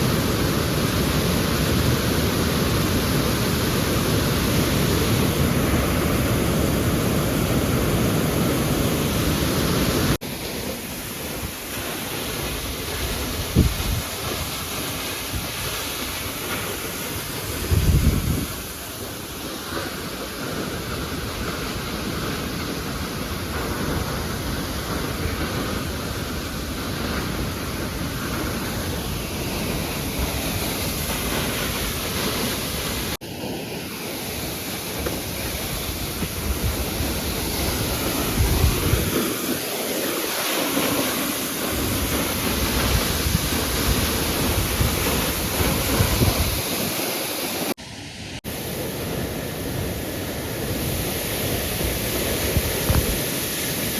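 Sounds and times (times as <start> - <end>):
waterfall roaring: 0.0 - 53.9
wind buffeting microphone: 11.3 - 33.2, 34.4 - 47.8, 48.9 - 53.9.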